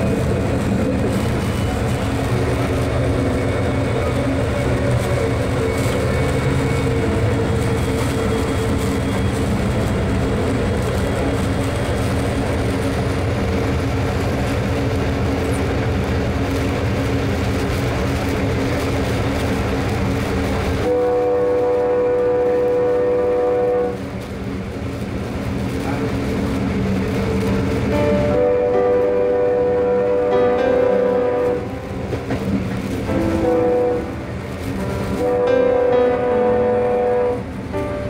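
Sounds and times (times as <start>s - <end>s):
train rumble from inside car: 0.0s - 38.0s.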